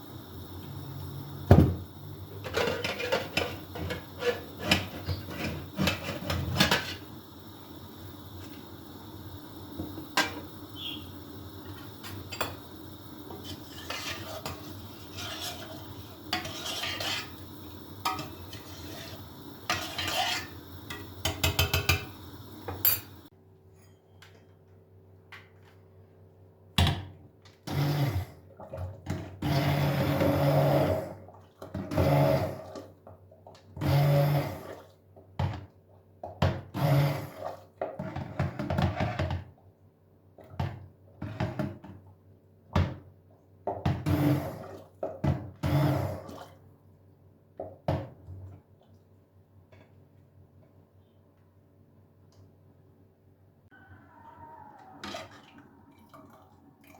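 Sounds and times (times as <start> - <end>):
steady background hum: 0.0 - 24.3.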